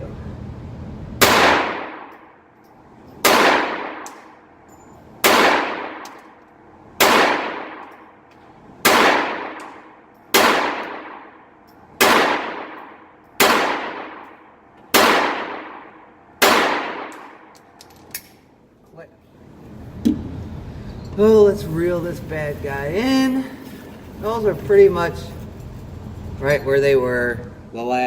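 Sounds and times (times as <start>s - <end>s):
pistol shots echoing: 1.2s - 2.4s, 3.2s - 4.5s, 5.2s - 6.4s, 7.0s - 8.2s, 8.8s - 17.8s.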